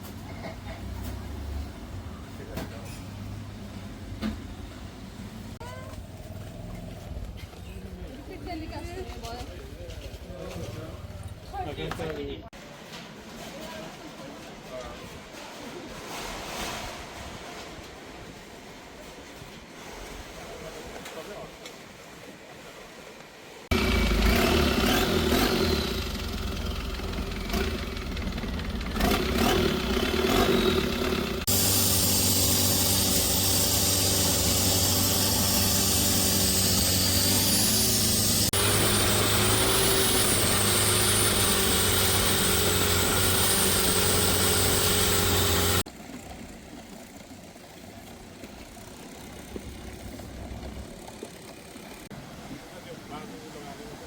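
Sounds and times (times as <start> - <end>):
background noise: 0.0 - 23.7
motor engine running: 23.7 - 52.1.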